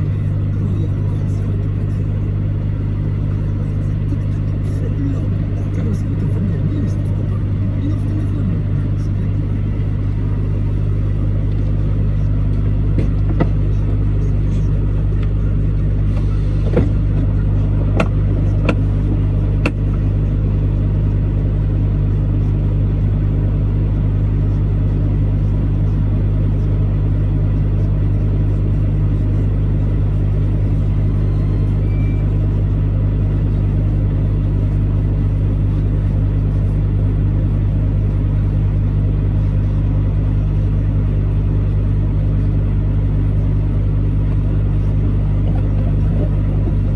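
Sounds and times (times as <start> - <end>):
truck engine and road noise: 0.0 - 46.9
sharp clicks or knocks: 18.0 - 19.0.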